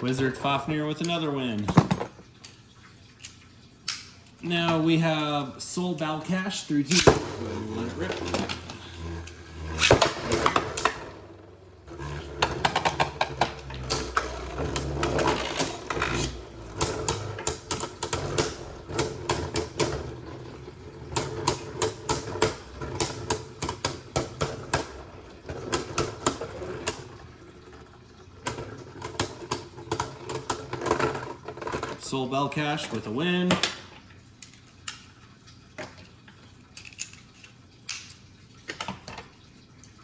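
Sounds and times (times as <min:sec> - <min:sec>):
spinning tops whirring: 0:06.3 - 0:32.1
tops clicking against each other: 0:11.9 - 0:27.0.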